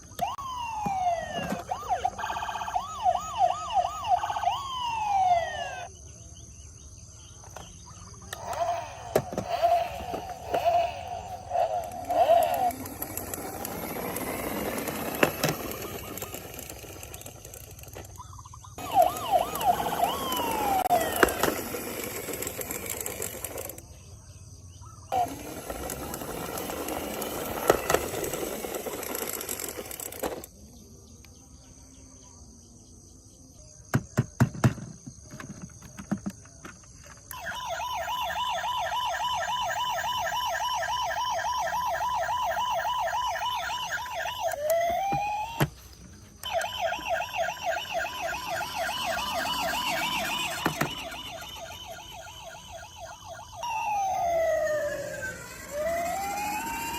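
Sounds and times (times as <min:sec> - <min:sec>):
electronic toy siren warbling: 0:00.1 - 0:05.9, 0:08.2 - 0:23.8, 0:25.1 - 0:30.5, 0:37.3 - 0:56.9
toy siren swoops: 0:00.2 - 0:05.9, 0:08.3 - 0:18.0, 0:18.8 - 0:23.8, 0:25.1 - 0:30.5, 0:37.3 - 0:56.9.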